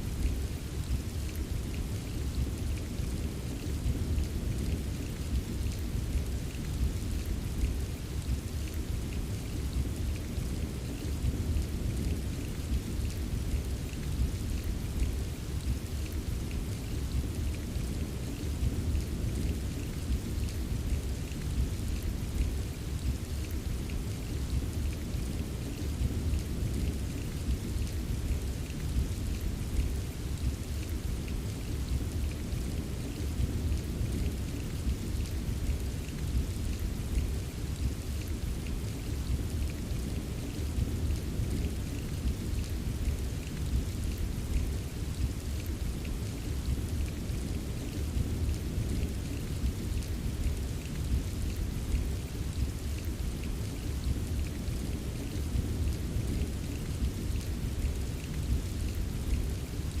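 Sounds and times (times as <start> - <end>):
steady rain: 0.0 - 60.0.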